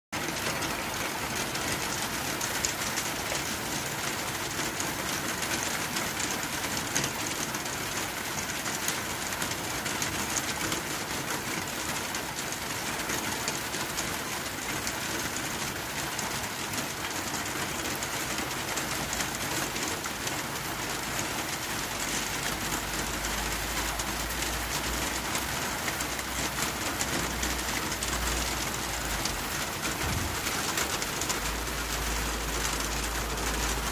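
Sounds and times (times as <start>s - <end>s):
rain on a tin roof: 0.2s - 33.9s
low rumble: 30.0s - 30.5s.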